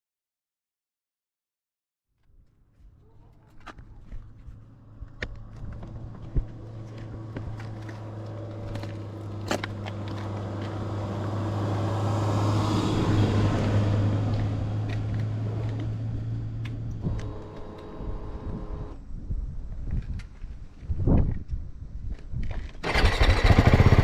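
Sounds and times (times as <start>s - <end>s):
motorcycle engine running: 14.3s - 18.9s, 22.8s - 24.0s.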